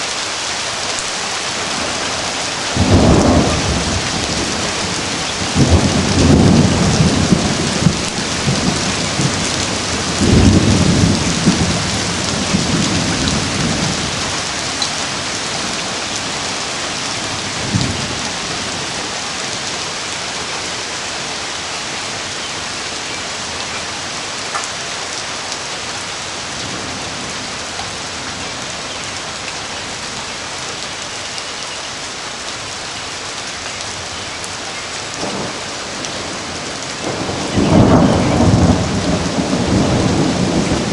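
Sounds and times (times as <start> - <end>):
heavy rain: 0.0 - 40.9
low thunder rumbles: 1.6 - 19.8, 35.1 - 40.9.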